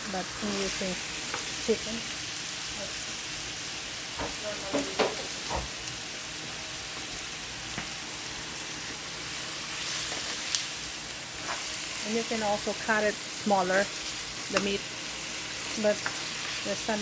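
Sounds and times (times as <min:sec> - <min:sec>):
chicken sizzling in hot oil: 0:00.0 - 0:17.0
sharp knocks against pan: 0:04.2 - 0:05.7.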